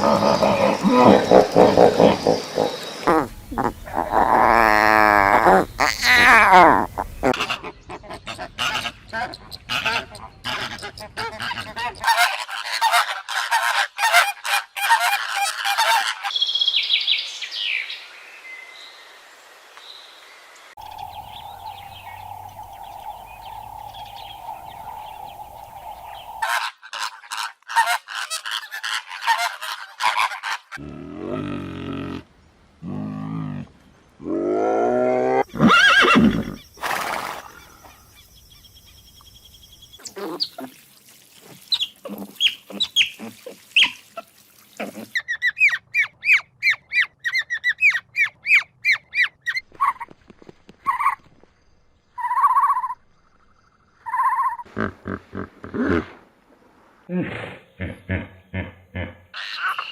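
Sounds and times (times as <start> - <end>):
high bird whistles: 20.9 - 26.4.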